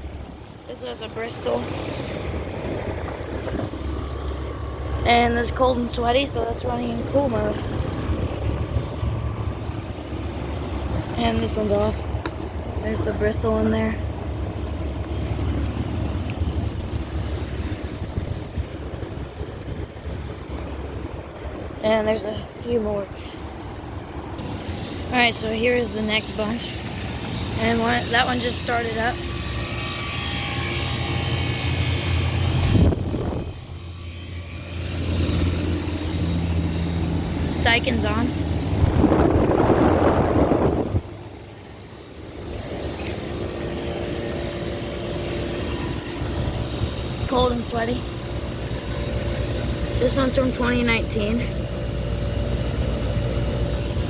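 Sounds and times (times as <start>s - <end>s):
air conditioning fans whooshing: 0.0s - 54.0s
wind buffeting microphone: 1.6s - 25.1s, 31.6s - 33.9s, 35.0s - 41.5s.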